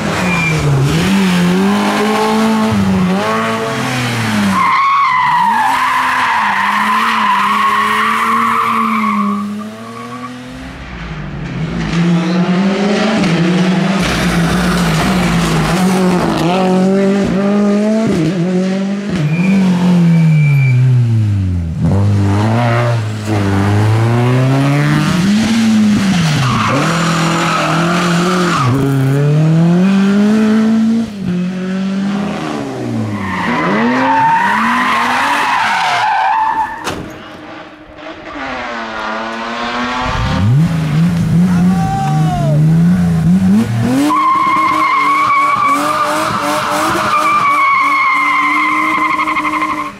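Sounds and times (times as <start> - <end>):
rally car engines revving: 0.0 - 49.9.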